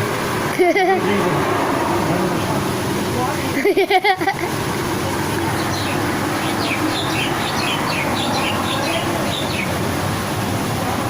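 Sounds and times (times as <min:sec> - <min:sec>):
steady background noise: 0:00.0 - 0:11.0
birds chirping: 0:04.9 - 0:10.3.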